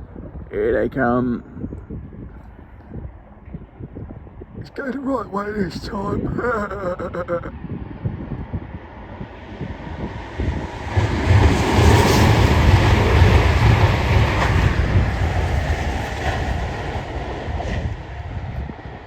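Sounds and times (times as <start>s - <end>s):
train wheels rumbling on rails: 8.2s - 19.0s.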